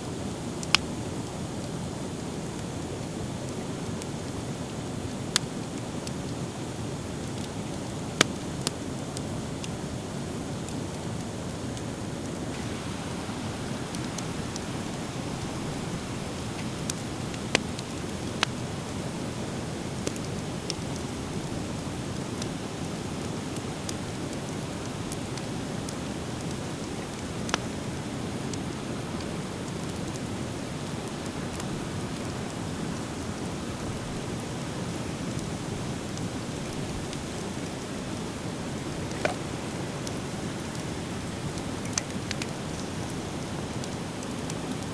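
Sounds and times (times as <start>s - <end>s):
fire crackling: 0.1s - 44.9s
steady rushing background noise: 12.4s - 19.2s
sharp pops from fire: 12.6s - 21.6s.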